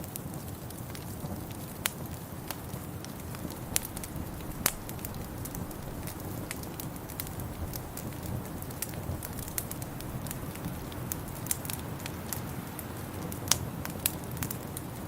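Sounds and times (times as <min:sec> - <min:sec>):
fire popping: 0:00.0 - 0:15.0
wood fire crackling: 0:00.0 - 0:15.0
low rumble: 0:03.3 - 0:11.8.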